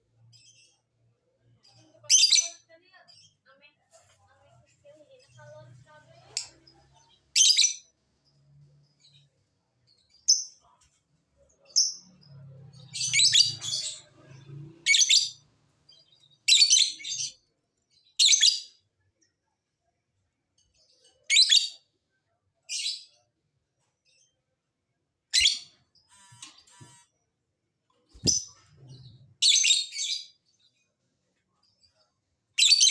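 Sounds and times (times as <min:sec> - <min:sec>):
lovebird chirping shrilly: 0:25.3 - 0:27.0.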